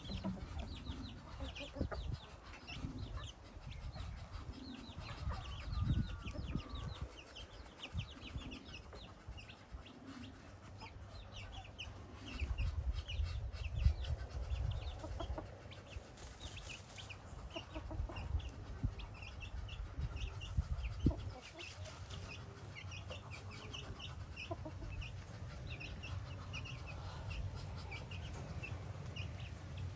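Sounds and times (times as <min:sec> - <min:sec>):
chickens clucking: 0:00.0 - 0:29.9.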